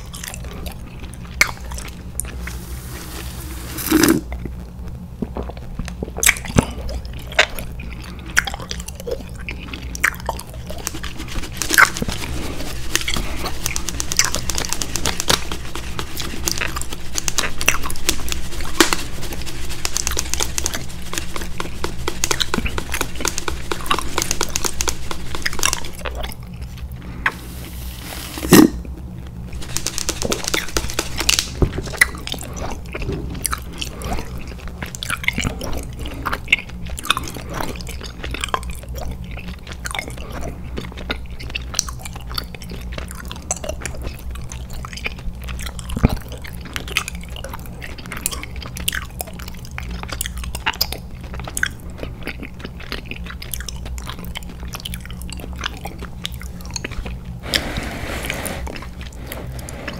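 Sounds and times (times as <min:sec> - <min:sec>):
chewing with mouth clicks: 0:00.0 - 0:03.2, 0:03.9 - 0:27.4, 0:28.5 - 0:59.9
plastic rustle: 0:10.6 - 0:34.5.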